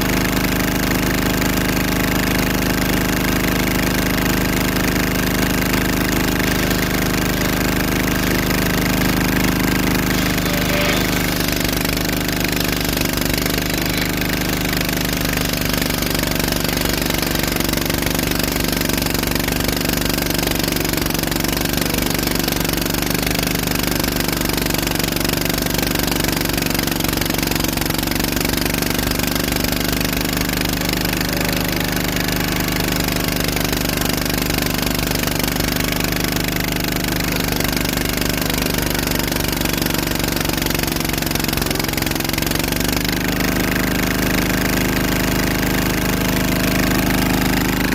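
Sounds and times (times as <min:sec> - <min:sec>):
engine running with rattling pulse: 0:00.0 - 0:47.9.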